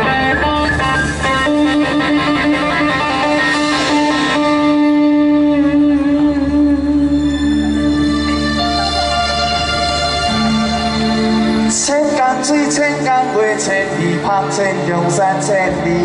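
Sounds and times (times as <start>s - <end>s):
band playing with electric guitar: 0.0s - 16.0s.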